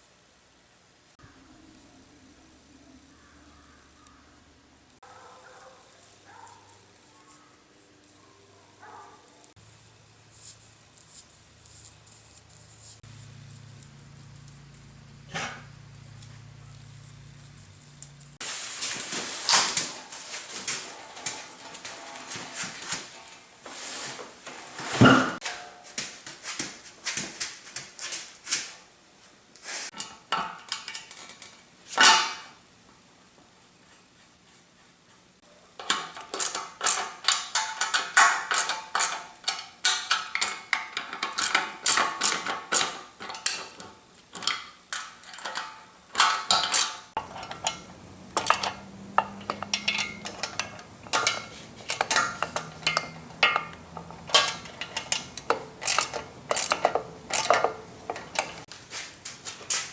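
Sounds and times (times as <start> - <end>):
faint low hum: 1.0 - 18.4
metal clinking and clattering: 35.8 - 58.7.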